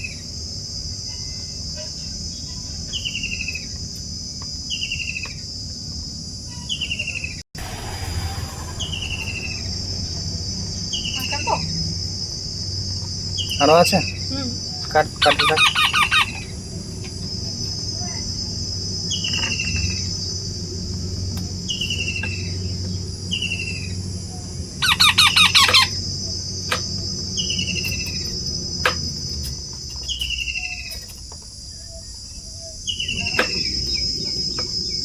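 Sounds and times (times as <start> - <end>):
falling bird chirp: 6.5 - 20.4, 21.5 - 35.0
rapid pulsed bird calls: 8.0 - 35.0
high-pitched insect buzz: 8.8 - 35.0.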